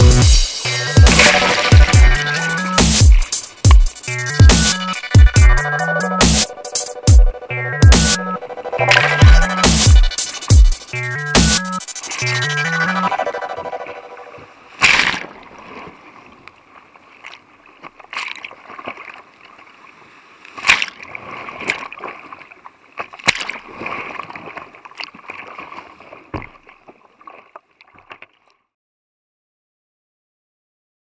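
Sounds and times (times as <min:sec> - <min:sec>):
water splashing against hull: 0:14.2 - 0:28.6.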